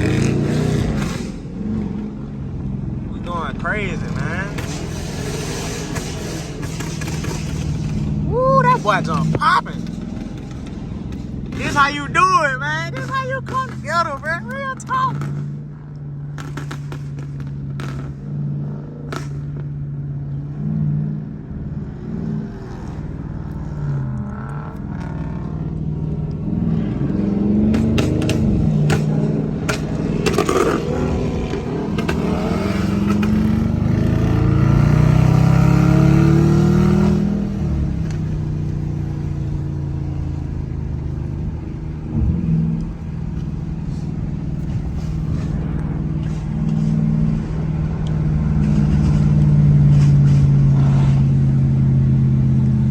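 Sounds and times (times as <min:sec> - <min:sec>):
car engine idling and revving: 0:00.0 - 0:52.9
sharp knocks: 0:27.7 - 0:33.6.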